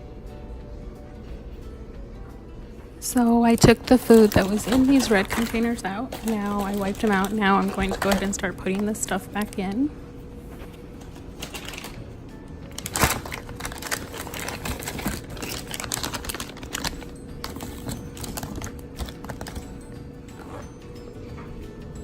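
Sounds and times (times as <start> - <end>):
quiet background music: 0.0 - 22.0
food clattering into plastic containers: 3.6 - 9.6, 11.1 - 12.0, 12.8 - 19.6.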